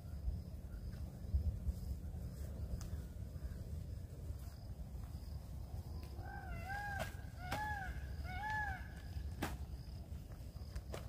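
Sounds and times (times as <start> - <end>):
steady low rumble: 0.0 - 10.9
bird calling: 5.9 - 9.8.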